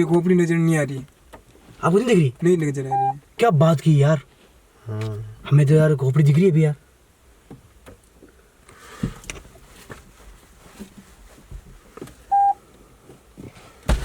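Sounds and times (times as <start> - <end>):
short electronic beep: 2.9 - 3.2, 12.3 - 12.6
handling rustle: 8.8 - 14.0.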